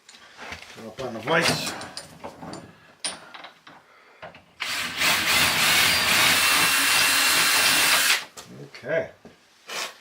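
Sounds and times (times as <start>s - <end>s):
electric drill boring metal: 4.6s - 8.2s.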